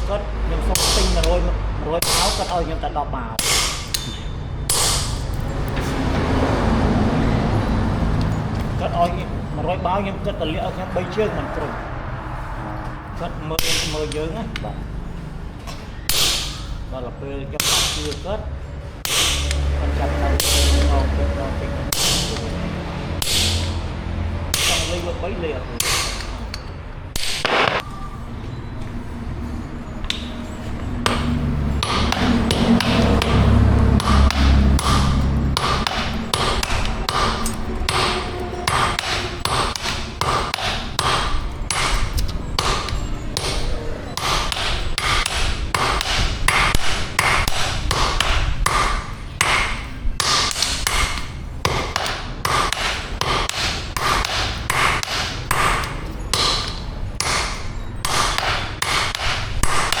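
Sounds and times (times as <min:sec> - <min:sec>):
hammer striking metal on anvil: 0:00.7 - 0:01.4, 0:02.0 - 0:02.8, 0:03.4 - 0:05.9, 0:13.6 - 0:14.7, 0:15.7 - 0:16.8, 0:17.6 - 0:18.3, 0:19.0 - 0:21.2, 0:21.8 - 0:23.9, 0:24.5 - 0:25.2, 0:25.8 - 0:28.0, 0:30.0 - 0:30.4, 0:31.0 - 1:00.0.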